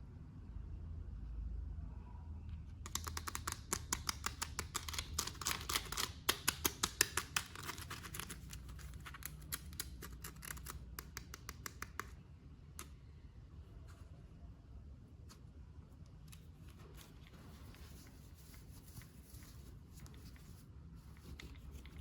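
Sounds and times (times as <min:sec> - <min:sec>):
low steady hum: 0:00.0 - 0:22.0
plastic clicks and snips: 0:02.8 - 0:12.2.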